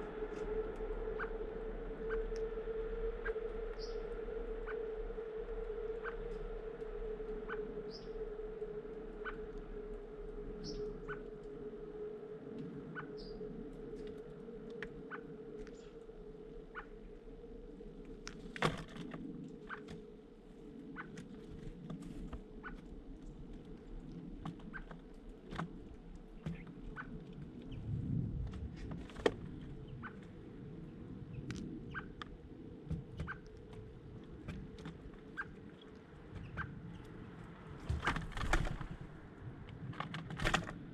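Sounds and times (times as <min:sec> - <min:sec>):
steady low hum: 0:00.0 - 0:40.9
small birds chirping: 0:03.2 - 0:04.9, 0:05.9 - 0:06.4, 0:07.4 - 0:08.3, 0:10.5 - 0:11.4, 0:12.9 - 0:18.6, 0:19.3 - 0:27.9, 0:29.4 - 0:38.5.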